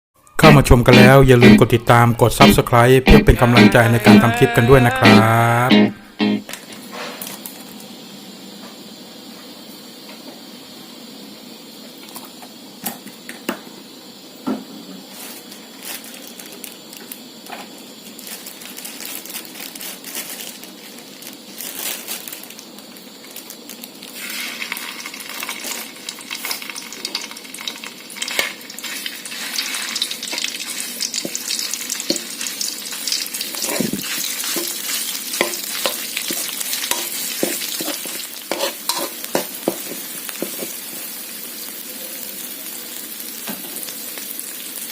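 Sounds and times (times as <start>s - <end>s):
stir-fry sizzling in pan: 0.4s - 44.9s
spatula scraping pan: 28.3s - 40.8s.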